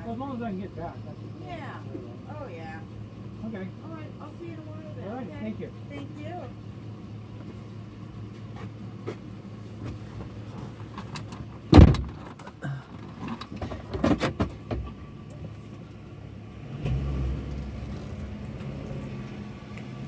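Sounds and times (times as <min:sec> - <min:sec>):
vehicle engine idling: 0:00.0 - 0:20.0
loud sharp thump: 0:11.7 - 0:12.2.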